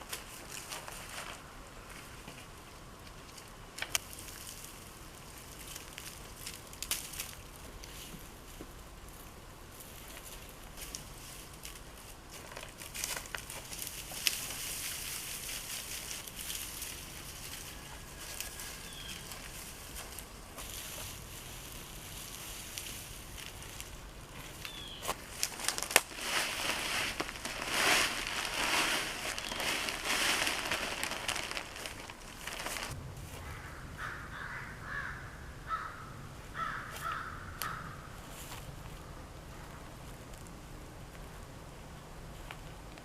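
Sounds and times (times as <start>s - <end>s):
bird calling: 24.6s - 25.1s, 29.3s - 30.0s
loud rushing crackling noise: 25.4s - 33.3s.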